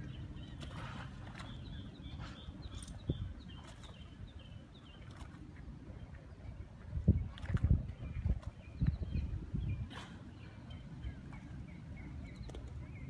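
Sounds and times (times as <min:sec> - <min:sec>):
bird chirping: 0:00.0 - 0:05.2.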